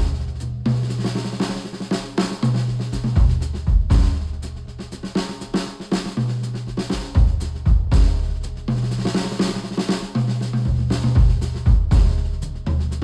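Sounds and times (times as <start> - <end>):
low bass notes: 0.0 - 0.7
drum kit beat: 0.0 - 13.0.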